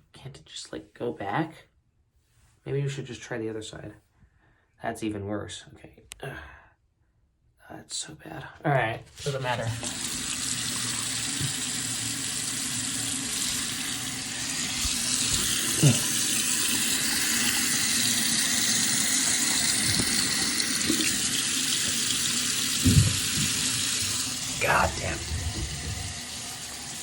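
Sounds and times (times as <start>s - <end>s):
tap water running into sink: 9.2s - 27.0s.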